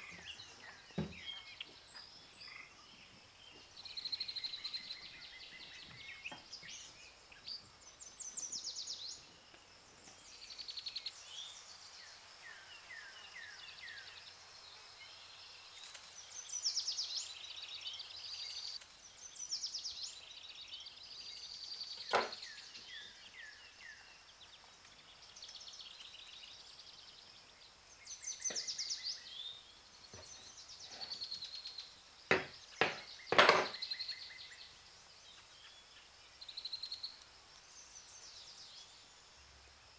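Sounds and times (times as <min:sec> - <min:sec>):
small birds chirping: 0:00.0 - 0:39.9
knife knocking on wooden table: 0:22.1 - 0:22.4, 0:32.3 - 0:33.8.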